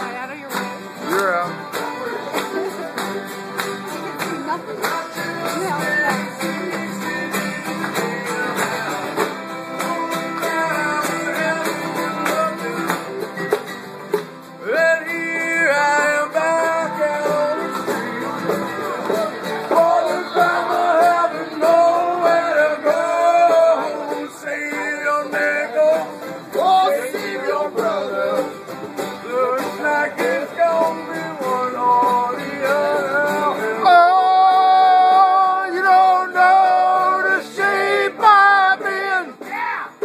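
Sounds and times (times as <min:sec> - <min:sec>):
acoustic string band playing: 0:00.0 - 0:40.0
person singing: 0:14.6 - 0:28.5, 0:29.2 - 0:40.0.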